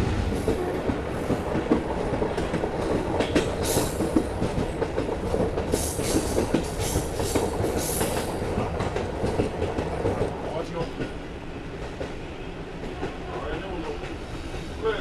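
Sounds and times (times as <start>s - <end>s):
train coach rumbling on track: 0.0s - 15.0s
wheels clicking over rail joints: 0.4s - 11.2s
hiss: 3.5s - 4.2s, 5.7s - 8.4s.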